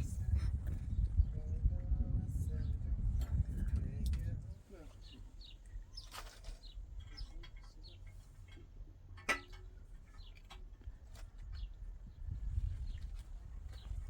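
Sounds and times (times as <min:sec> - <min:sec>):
small birds chirping: 0:04.0 - 0:08.6, 0:09.4 - 0:14.0.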